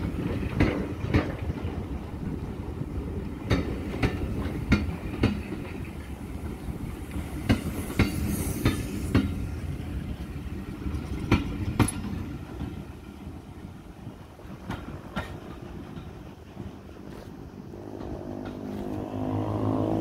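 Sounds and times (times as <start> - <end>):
train low rumble: 0.0 - 20.0
train wheels clacking over rail joint: 0.1 - 1.8, 3.4 - 6.1, 7.1 - 9.5, 10.8 - 12.8, 14.4 - 19.0.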